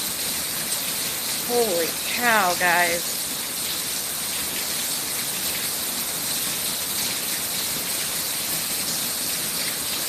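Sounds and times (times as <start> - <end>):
heavy rain hissing: 1.4 - 3.2.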